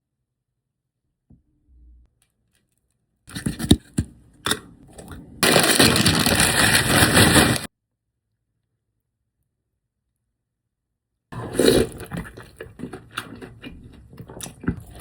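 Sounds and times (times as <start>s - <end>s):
food packaging rustling and crinkling: 5.0s - 7.7s.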